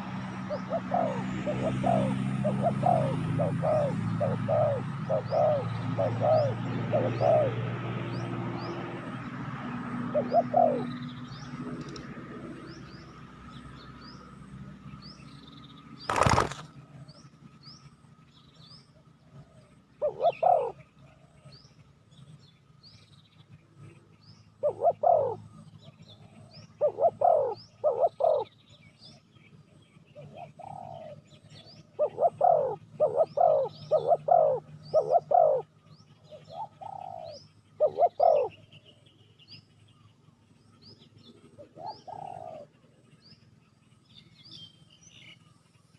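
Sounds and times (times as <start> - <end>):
dove cooing: 0.0 - 12.0, 19.2 - 21.6, 24.5 - 28.5, 30.2 - 38.8, 41.3 - 43.0
small bird chirping: 10.2 - 45.9.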